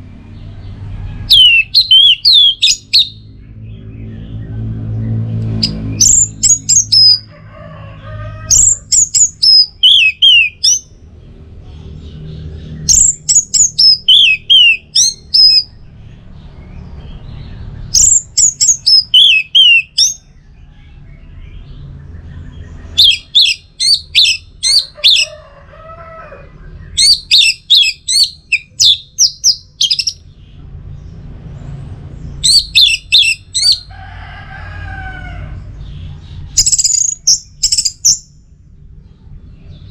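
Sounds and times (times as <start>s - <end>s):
thrush whistling song: 1.3s - 3.3s, 5.6s - 7.3s, 8.5s - 10.9s, 12.8s - 15.8s, 17.9s - 20.2s, 22.9s - 25.3s, 26.9s - 30.2s, 32.4s - 33.9s.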